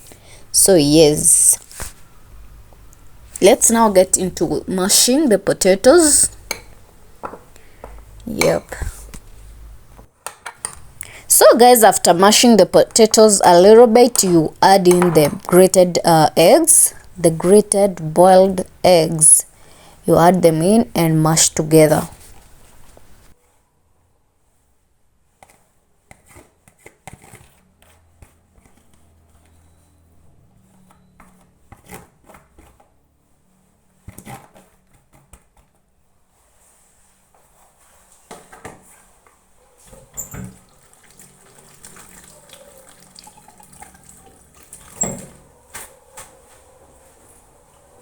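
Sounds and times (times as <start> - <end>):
utensil knocking against bowl: 14.1 - 15.5
wet squelches of mashing: 40.5 - 46.8.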